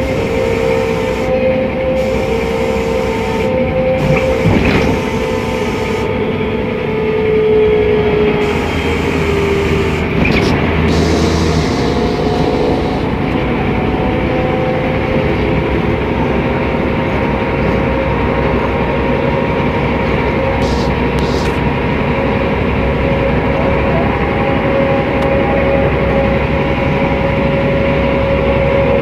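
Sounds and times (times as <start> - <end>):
road noise: 0.0 - 22.8
bus diesel engine whine: 0.0 - 29.0.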